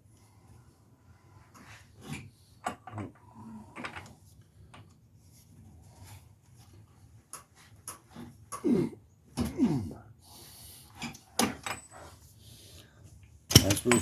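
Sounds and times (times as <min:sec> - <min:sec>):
tools and metal parts clicking: 0:13.5 - 0:14.0.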